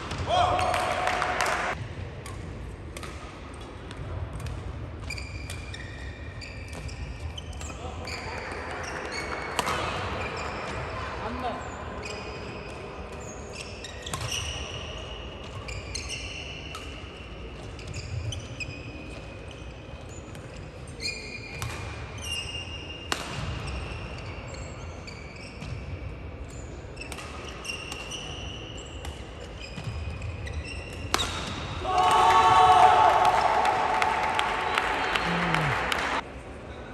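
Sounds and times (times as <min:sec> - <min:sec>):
racket hitting shuttlecock: 0:02.2 - 0:04.7, 0:09.6 - 0:10.1, 0:23.1 - 0:23.8, 0:30.9 - 0:32.3
shoes squeaking on court floor: 0:05.0 - 0:10.9, 0:11.6 - 0:31.7.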